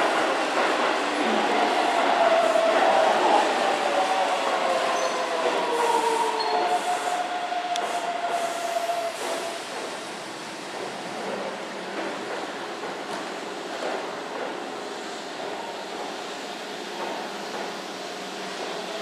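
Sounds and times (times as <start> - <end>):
train running noise: 0.0 - 19.0
train brakes and wheels squealing: 0.8 - 11.4.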